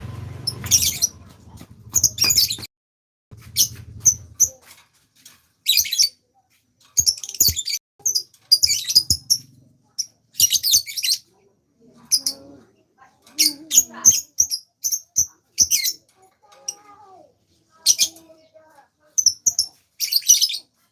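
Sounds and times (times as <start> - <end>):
songbird chirping: 0.0 - 1.3, 1.9 - 2.7, 6.9 - 20.8.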